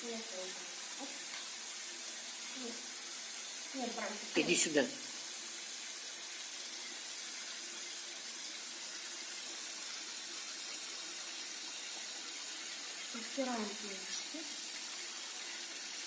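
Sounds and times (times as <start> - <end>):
water running into a bathtub: 0.0 - 16.0.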